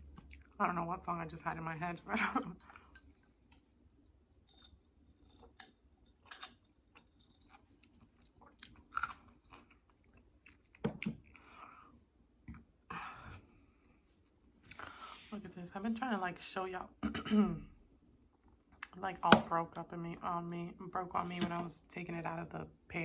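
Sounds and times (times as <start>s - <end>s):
chewing and mouth smacks: 0.1s - 0.6s, 6.9s - 11.5s.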